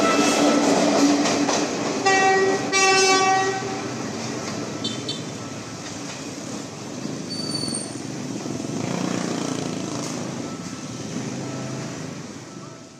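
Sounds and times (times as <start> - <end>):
city traffic noise: 0.0 - 12.9
diesel train rumble: 0.0 - 12.9
faint high squeal: 7.3 - 8.0.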